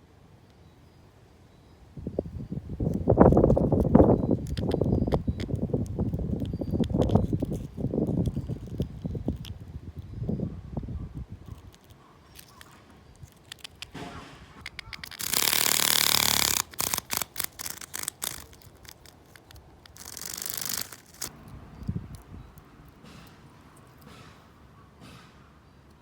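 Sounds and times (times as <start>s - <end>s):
cicada clicks: 2.8s - 9.7s, 11.4s - 14.0s, 14.6s - 24.1s
cicada rasping buzz: 14.8s - 23.4s.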